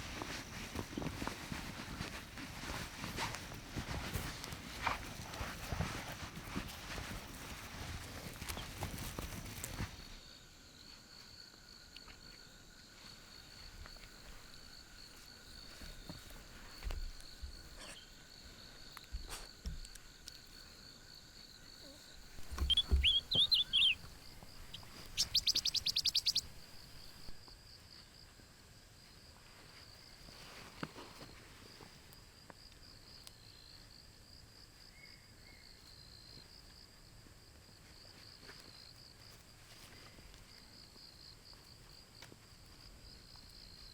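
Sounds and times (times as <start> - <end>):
high-pitched insect trill: 20.3 - 27.4
rapid rattling call: 22.4 - 27.1
bird chirps: 22.4 - 27.4.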